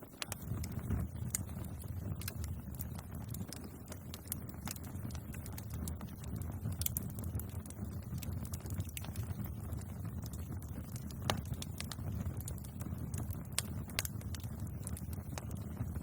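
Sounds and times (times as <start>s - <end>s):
bonfire crackling: 0.0s - 16.0s
burning wood popping: 0.0s - 16.0s.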